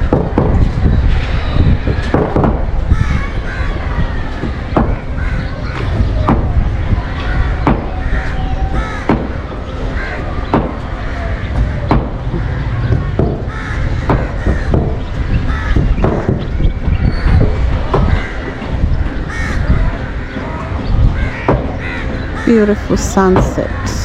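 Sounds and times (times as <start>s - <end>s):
sharp knocks: 0.0s - 0.8s, 1.9s - 2.8s, 4.4s - 5.1s, 5.8s - 6.7s, 9.0s - 9.5s, 10.5s - 10.9s, 11.5s - 18.2s
low rumble: 0.0s - 21.3s
birds cawing: 0.0s - 24.0s.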